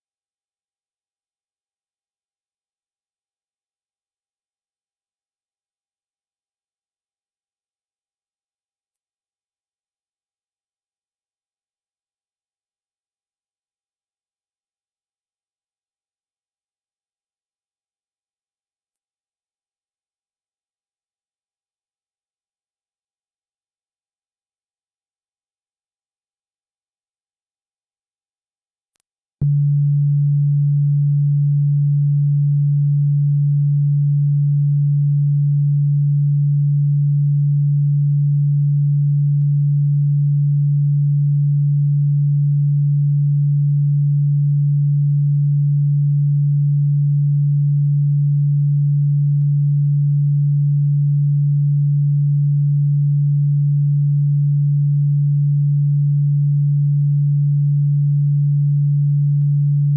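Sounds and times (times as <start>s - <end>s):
low electronic sine tone: 29.4s - 59.9s.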